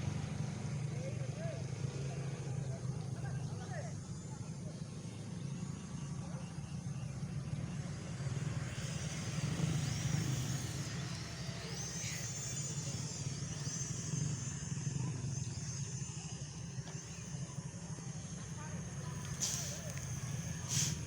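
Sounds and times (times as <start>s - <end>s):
electric motors whining: 7.1s - 21.0s.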